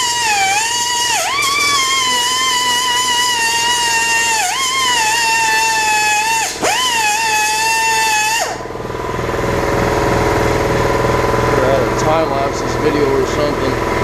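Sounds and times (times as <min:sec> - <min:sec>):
angle grinder whining: 0:00.0 - 0:14.0
low steady rumble: 0:08.6 - 0:14.0.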